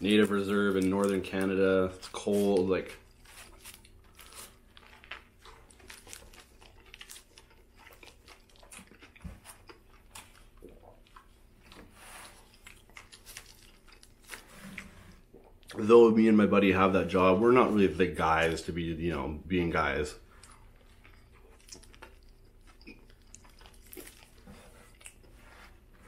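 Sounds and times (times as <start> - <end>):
man chewing with crunches: 0.0 - 15.8, 20.2 - 26.0.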